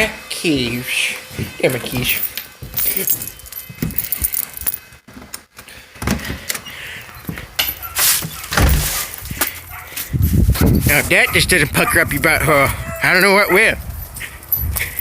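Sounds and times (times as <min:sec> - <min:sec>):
keys jangling: 0:01.9 - 0:05.0, 0:07.5 - 0:11.1, 0:13.9 - 0:15.0.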